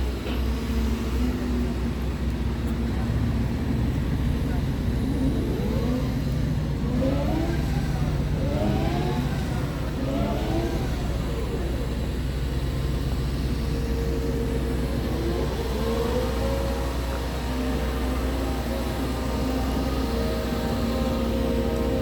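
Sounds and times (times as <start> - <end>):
diesel engine humming: 0.0 - 22.0.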